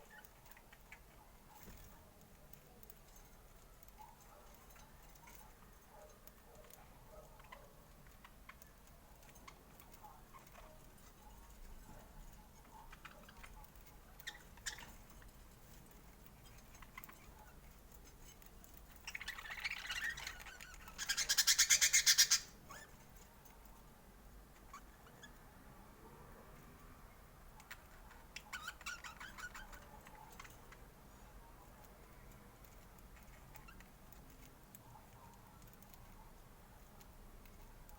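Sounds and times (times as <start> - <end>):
budgerigars chirping and chattering: 12.9 - 15.2, 19.0 - 22.9, 27.6 - 30.8.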